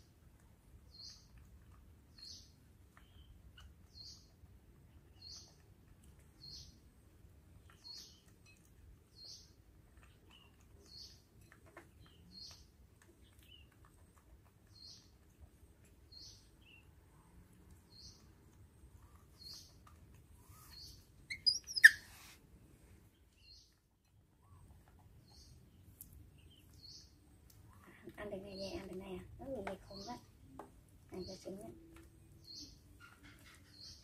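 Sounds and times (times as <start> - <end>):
high short chirps: 21.3 - 22.2.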